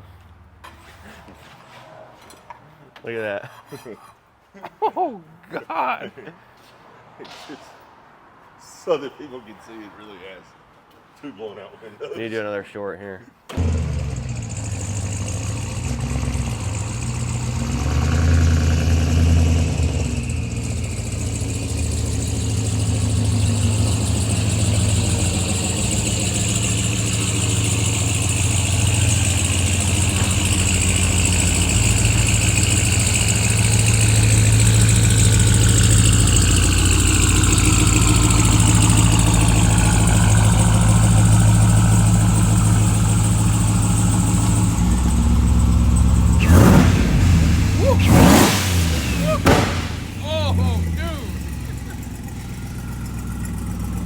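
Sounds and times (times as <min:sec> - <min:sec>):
vehicle engine running: 0:13.5 - 0:54.0.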